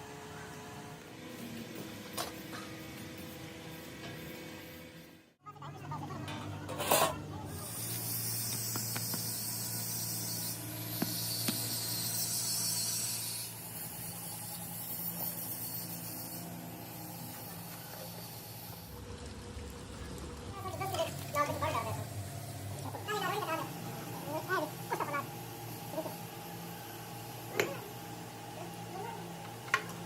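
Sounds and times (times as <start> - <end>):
low machine hum: 13.1 - 30.0.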